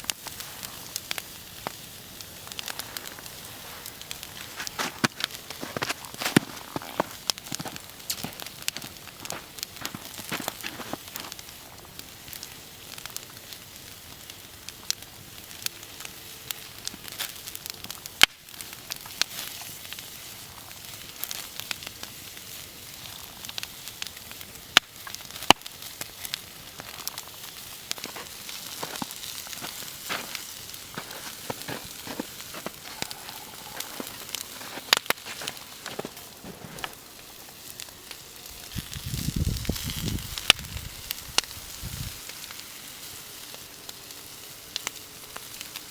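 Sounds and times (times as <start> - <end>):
fire pops: 0.0 - 44.0
wood fire crackling: 0.0 - 45.9.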